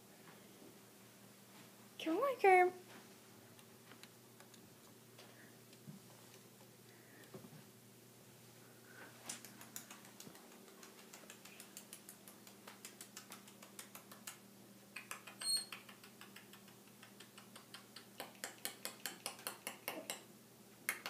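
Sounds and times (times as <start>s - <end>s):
bird claws clicking on floor: 9.2s - 14.4s.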